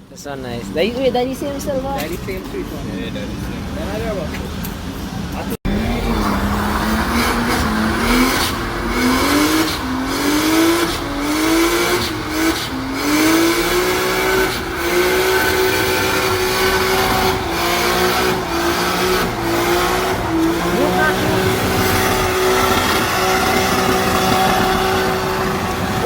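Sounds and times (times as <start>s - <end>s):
tire noise: 0.0s - 26.0s
car engine revving hard: 5.6s - 26.0s.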